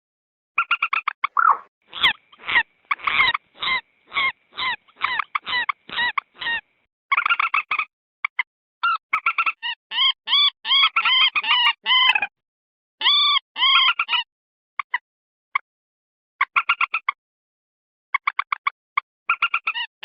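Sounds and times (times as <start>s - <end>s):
moorhen clucking calls: 0.6s - 6.6s.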